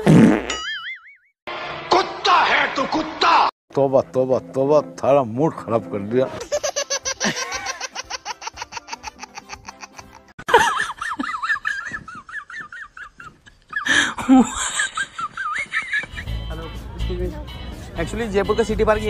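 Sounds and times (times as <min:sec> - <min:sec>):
person laughing: 0:06.4 - 0:16.3.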